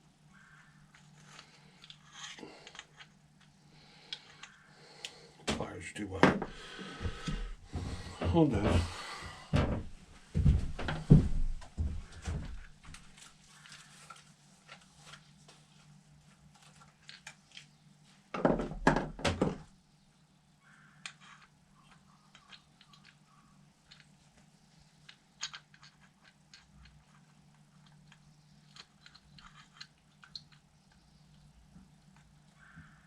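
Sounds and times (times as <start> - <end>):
knocking and handling noise: 5.5 - 13.2, 18.3 - 19.7
small metal parts clicking: 21.0 - 24.1, 25.0 - 31.0.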